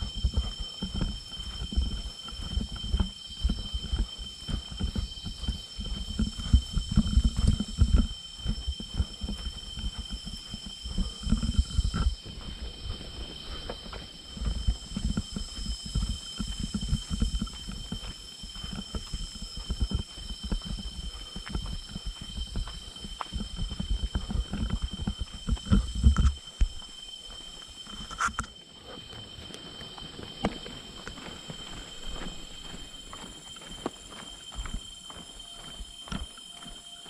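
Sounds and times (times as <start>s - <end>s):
low rumbles and thumps: 0.0s - 26.9s
shrill insect drone: 0.0s - 37.0s.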